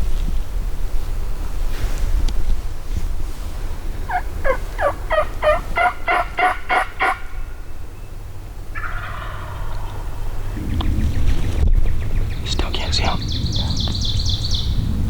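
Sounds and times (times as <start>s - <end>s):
soft raspy call sound: 4.1s - 7.4s
turkey call yelps: 4.1s - 7.6s, 8.7s - 10.2s.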